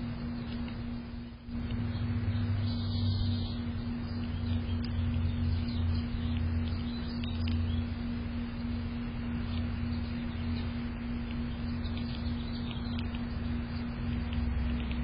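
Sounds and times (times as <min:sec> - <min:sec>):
low hum: 0:00.0 - 0:15.0
faint bird chirps: 0:01.8 - 0:08.1, 0:09.3 - 0:14.9.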